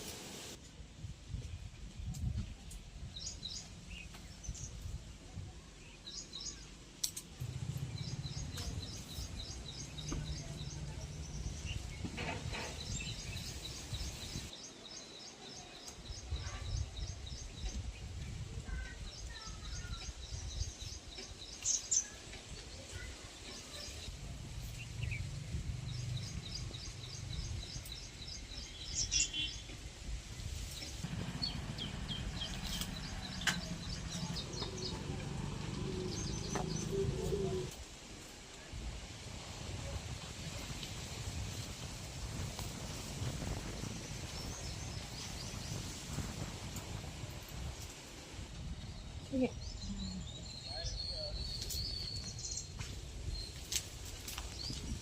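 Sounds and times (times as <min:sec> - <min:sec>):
small birds chirping: 0:02.0 - 0:37.8, 0:40.5 - 0:55.0
low rumbling noise: 0:07.3 - 0:14.5, 0:24.0 - 0:29.0, 0:30.1 - 0:50.7.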